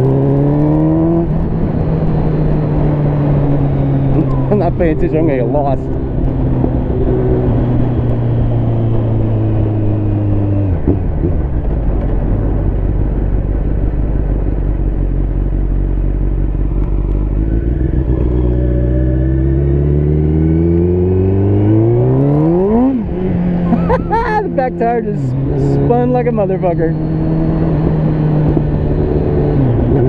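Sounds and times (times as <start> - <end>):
sport bike engine revving: 0.0 - 10.7, 16.0 - 30.0.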